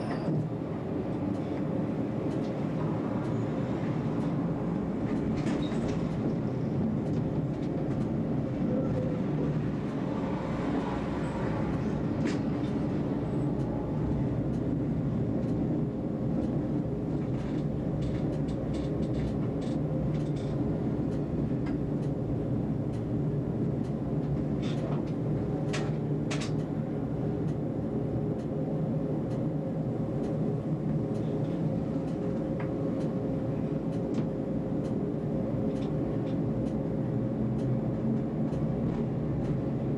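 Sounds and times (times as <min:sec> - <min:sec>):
tram rumbling along track: 0:00.0 - 0:39.9
wheels clicking on rails: 0:11.7 - 0:22.3.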